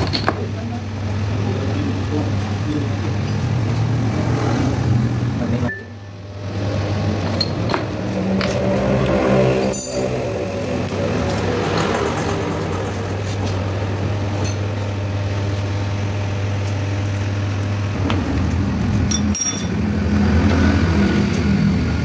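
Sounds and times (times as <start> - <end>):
low machine hum: 0.0 - 22.0
metal clinks: 19.0 - 19.8.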